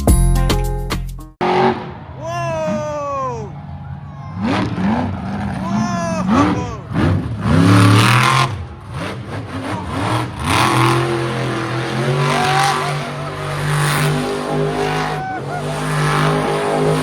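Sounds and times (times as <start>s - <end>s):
monster truck engines revving: 1.4s - 17.0s.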